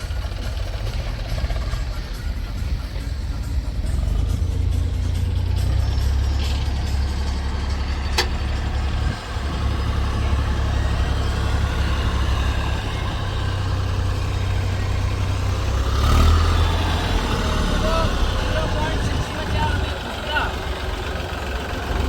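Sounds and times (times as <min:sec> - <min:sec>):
diesel engine rumbling: 0:00.0 - 0:22.0.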